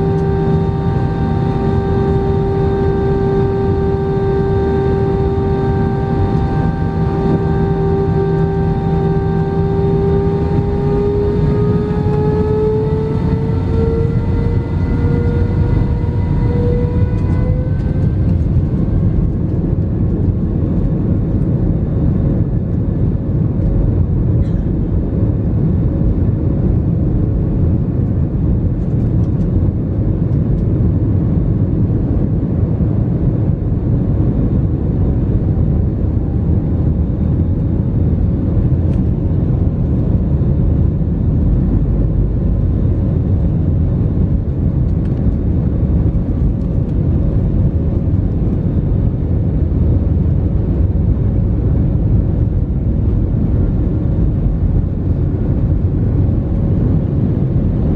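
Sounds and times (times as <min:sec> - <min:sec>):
faint steady hum: 0:00.0 - 0:57.9
jet cabin engine rumble: 0:00.0 - 0:57.9.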